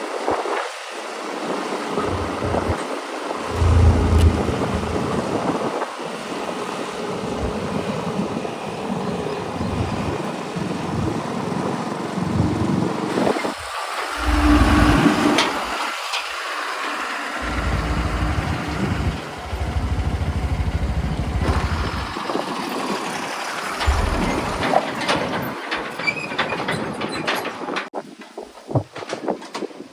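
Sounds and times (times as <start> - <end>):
diesel engine running: 3.4 - 5.7, 14.2 - 15.8, 17.3 - 25.0.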